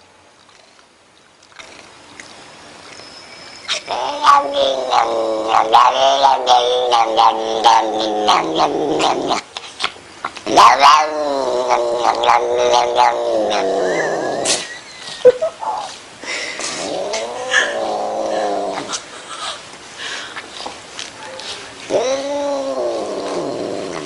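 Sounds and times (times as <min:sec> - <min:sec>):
cat yowling: 0:03.7 - 0:09.4, 0:10.5 - 0:14.3, 0:21.9 - 0:24.0.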